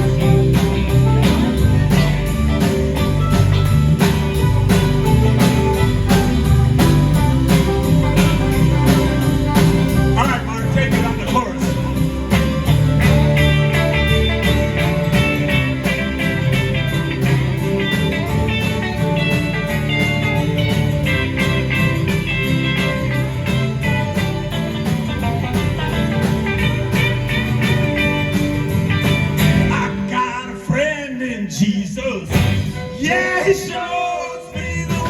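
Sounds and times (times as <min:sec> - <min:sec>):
drum beat: 0:00.0 - 0:30.2, 0:32.3 - 0:33.7
electric guitar melodic lines: 0:00.0 - 0:30.5
bass: 0:00.0 - 0:35.0.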